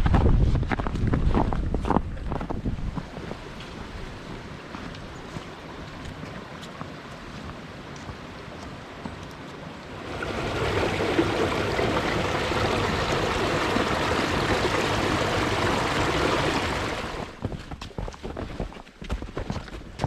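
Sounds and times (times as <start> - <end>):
stream water rushing over rocks: 3.0 - 17.4.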